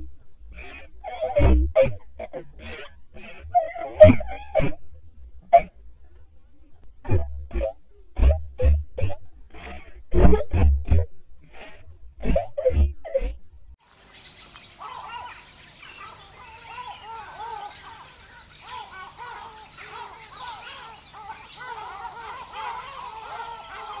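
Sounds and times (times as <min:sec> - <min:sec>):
flock of birds calling: 0:14.0 - 0:24.0.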